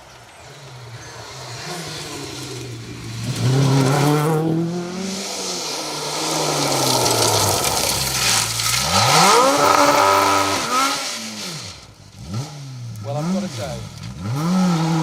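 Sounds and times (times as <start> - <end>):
rally car engine revving hard: 6.8 - 10.9.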